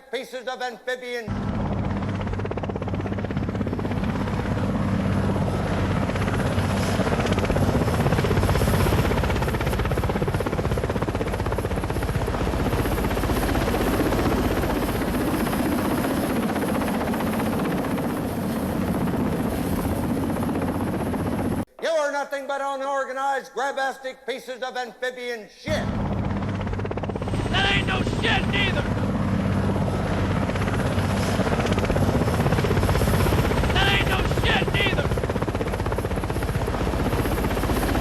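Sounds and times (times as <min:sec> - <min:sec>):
low hum: 0:25.7 - 0:34.4.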